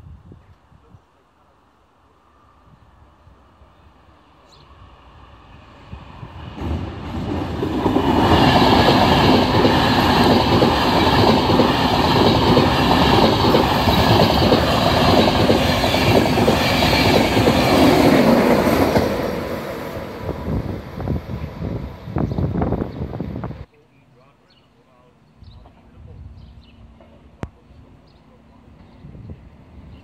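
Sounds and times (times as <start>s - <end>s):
train passing at speed: 2.0s - 23.7s, 25.6s - 30.0s
wheels rushing on rail: 2.6s - 23.7s.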